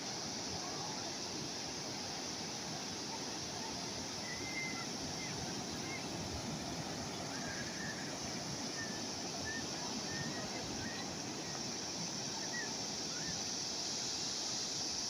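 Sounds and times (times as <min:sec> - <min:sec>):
sea waves washing: 0:00.0 - 0:15.0
faint bird chirps: 0:03.6 - 0:13.6.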